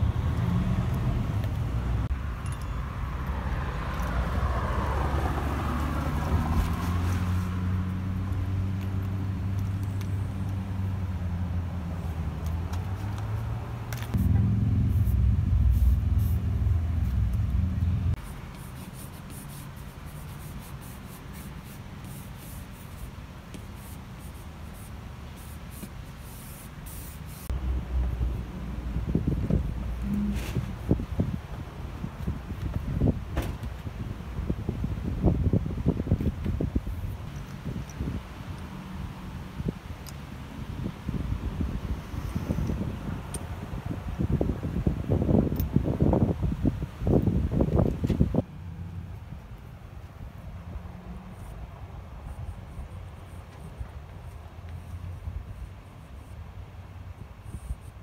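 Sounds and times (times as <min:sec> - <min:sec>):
vehicle engine running: 0:14.0 - 0:18.6
chalk ticking on a blackboard: 0:18.2 - 0:27.5.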